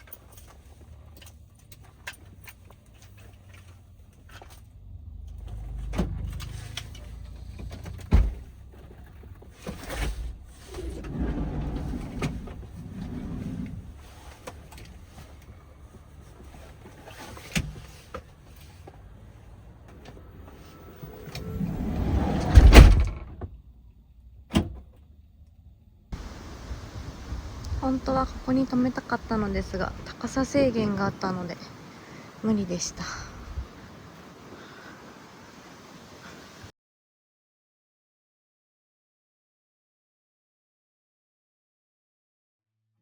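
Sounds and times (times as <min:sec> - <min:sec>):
knocks and thuds on a van: 0:07.6 - 0:08.6, 0:21.7 - 0:23.5
low rumble: 0:10.3 - 0:14.1, 0:19.4 - 0:30.1.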